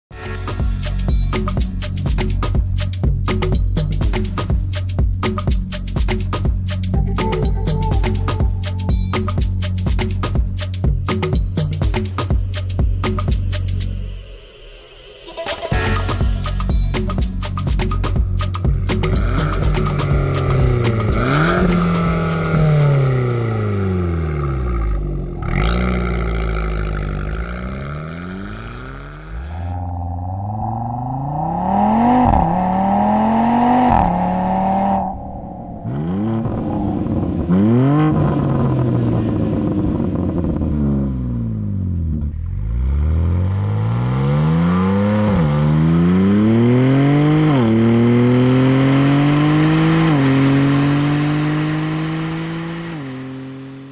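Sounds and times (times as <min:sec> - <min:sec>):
car engine accelerating through gears: 0:18.6 - 0:53.9.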